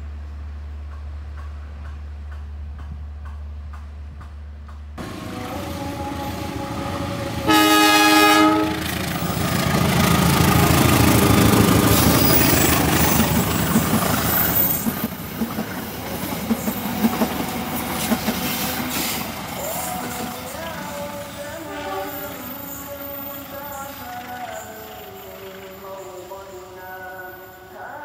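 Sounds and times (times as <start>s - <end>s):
train rumbling past: 0.0s - 28.0s
train horn blast: 5.0s - 9.0s, 17.7s - 19.2s, 21.6s - 22.5s
wheels clacking over rail joints: 8.8s - 21.1s.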